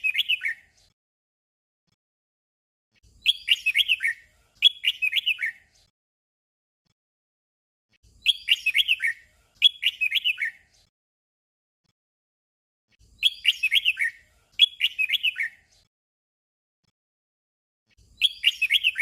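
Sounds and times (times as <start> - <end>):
bird singing warbled song: 0.0 - 0.9, 3.0 - 5.9, 8.0 - 10.9, 12.9 - 15.9, 17.9 - 19.0.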